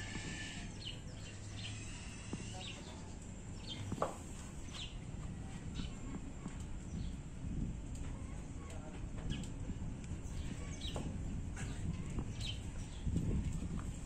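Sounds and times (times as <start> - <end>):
small birds chirping: 0.0 - 7.3, 7.9 - 14.0.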